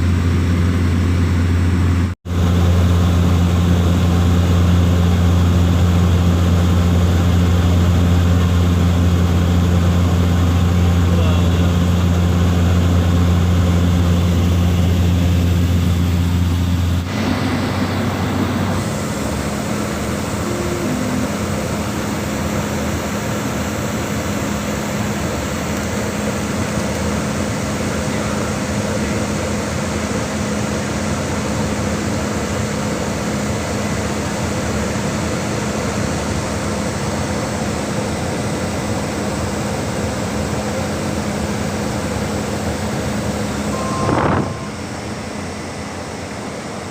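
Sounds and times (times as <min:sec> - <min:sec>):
propeller plane engine drone: 0:00.0 - 0:46.9.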